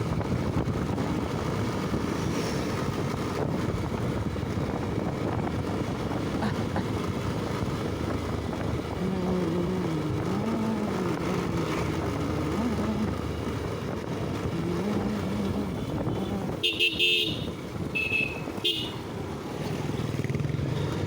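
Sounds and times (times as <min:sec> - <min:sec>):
motorcycle engine and road noise: 0:00.0 - 0:21.0
wavering pitch-shifting hum: 0:04.3 - 0:16.6.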